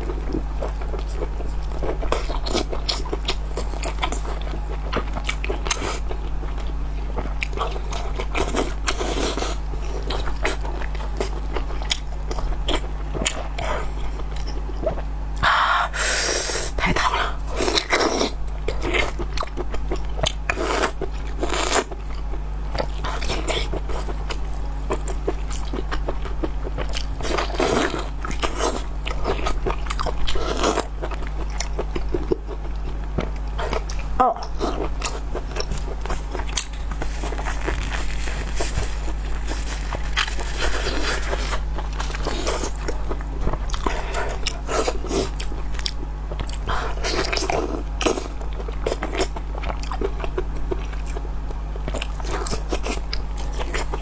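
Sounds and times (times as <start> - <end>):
steady low hum: 0.0 - 54.0
wet chewing mouth sounds: 0.0 - 54.0.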